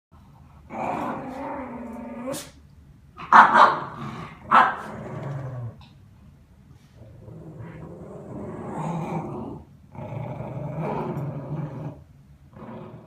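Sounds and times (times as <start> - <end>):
dog growling: 0.7 - 2.6, 3.8 - 5.9, 7.1 - 13.0
dog barking: 3.2 - 3.9, 4.5 - 4.9.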